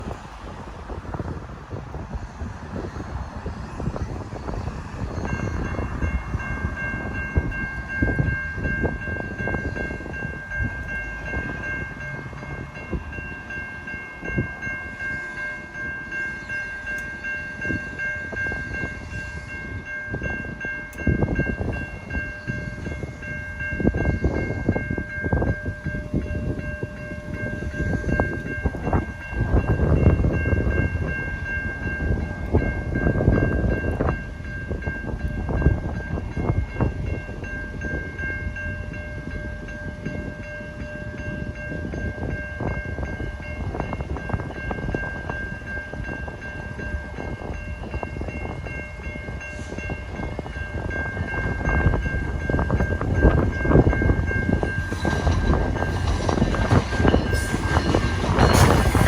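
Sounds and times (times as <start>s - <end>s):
crossing bell ringing: 0.0s - 59.0s
train rumbling past: 0.0s - 59.0s
wheels clattering over rail joints: 50.3s - 59.0s.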